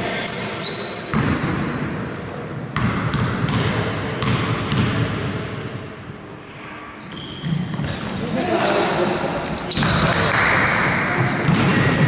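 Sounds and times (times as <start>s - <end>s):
murmur in a hall: 0.0s - 12.0s
basketball bouncing on court: 1.1s - 1.6s, 2.8s - 5.3s, 9.7s - 12.0s.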